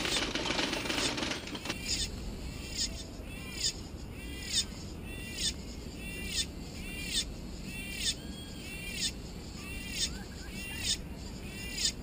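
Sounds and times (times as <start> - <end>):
bird calling repeatedly: 0.0 - 12.0.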